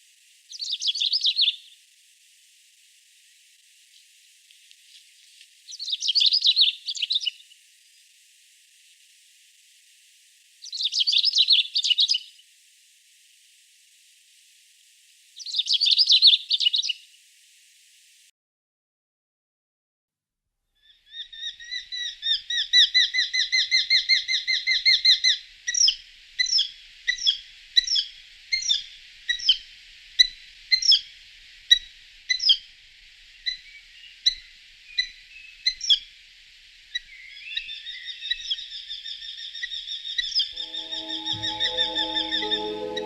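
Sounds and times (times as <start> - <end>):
songbird chirping: 40.6 - 43.0.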